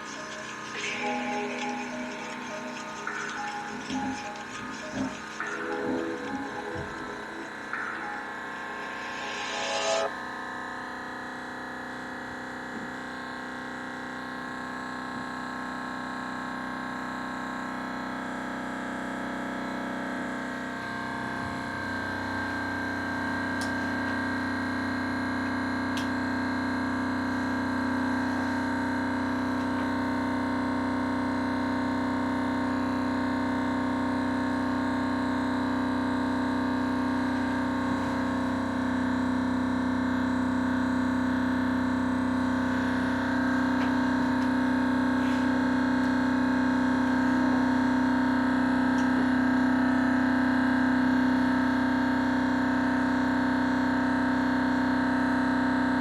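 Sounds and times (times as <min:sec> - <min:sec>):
engine steady tone: 0:00.0 - 0:10.1.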